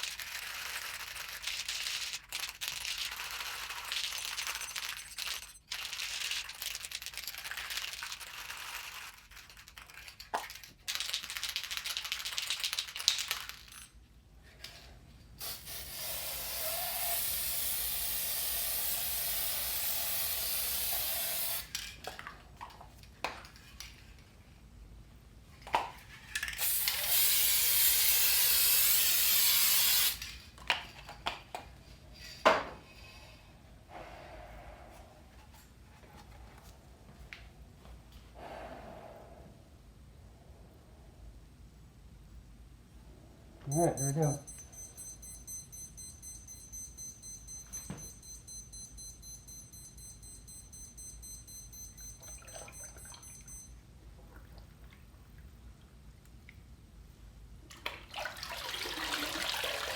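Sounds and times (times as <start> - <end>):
aerosol can spraying: 15.4 - 21.6, 26.6 - 30.2.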